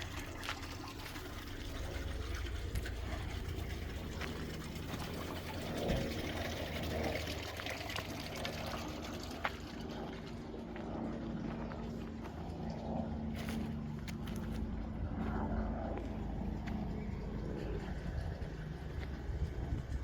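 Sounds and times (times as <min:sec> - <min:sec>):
water pouring and trickling: 0:00.0 - 0:15.3
low machine hum: 0:00.0 - 0:20.0.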